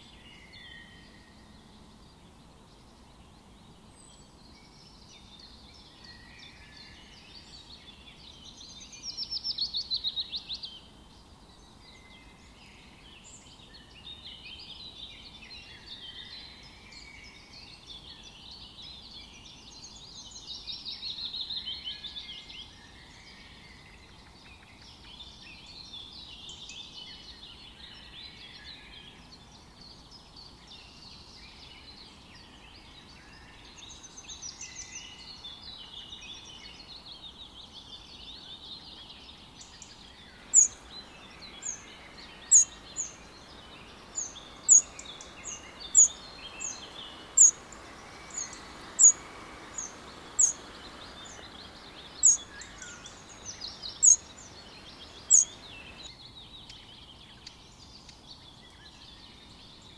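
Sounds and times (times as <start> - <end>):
background hiss: 0.0 - 59.9
chorus of birds chirping: 0.0 - 59.9.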